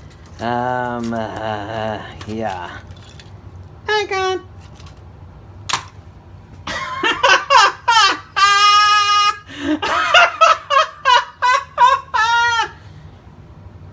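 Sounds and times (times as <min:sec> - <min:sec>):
man laughing maniacally: 0:06.7 - 0:12.9.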